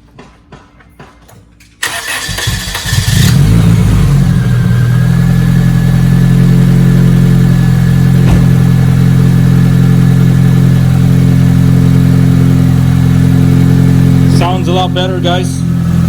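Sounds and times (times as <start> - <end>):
engine starter cranking: 1.8 - 3.6
car engine idling: 1.8 - 16.0.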